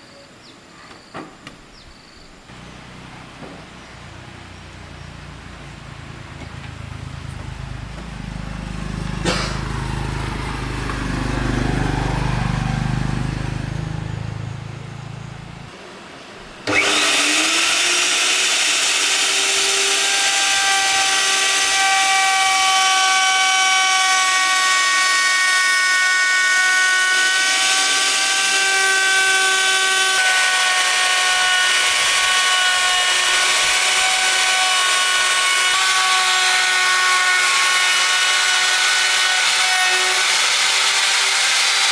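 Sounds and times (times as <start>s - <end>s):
low rumble: 2.6s - 15.7s
power tool high whine: 8.2s - 14.7s, 16.6s - 41.9s.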